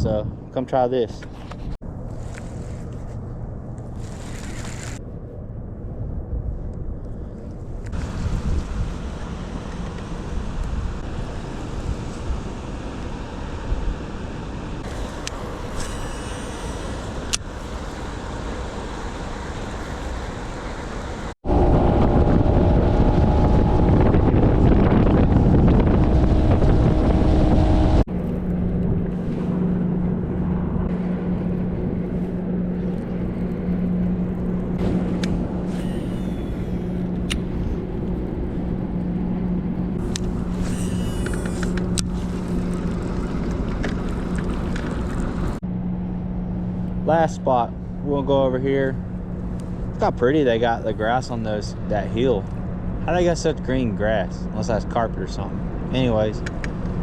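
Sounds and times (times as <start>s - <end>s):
wind buffeting microphone: 0.0s - 2.3s, 2.9s - 45.6s
outboard motor running: 14.8s - 57.0s
water rushing past hull: 41.5s - 45.6s.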